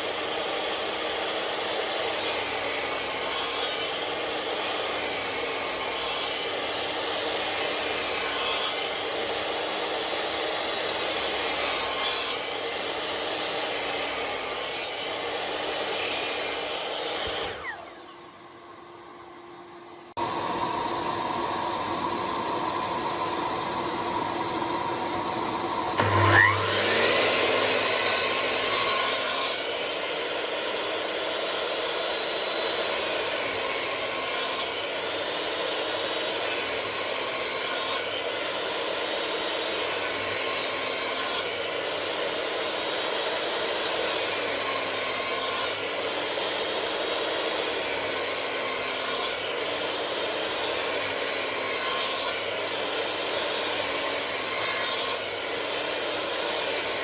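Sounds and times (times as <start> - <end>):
power tool rasping on wood: 20.1 - 31.4.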